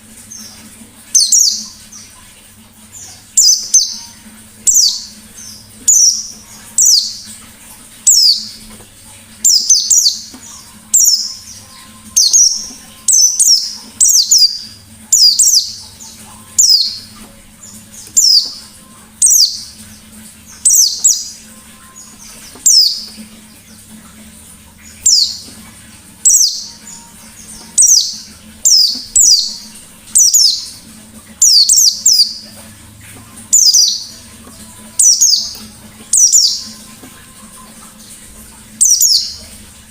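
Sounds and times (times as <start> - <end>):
bird singing high sweeping notes: 0.2 - 2.2, 2.9 - 7.4, 8.0 - 8.7, 9.4 - 23.9, 24.8 - 32.7, 33.4 - 39.6.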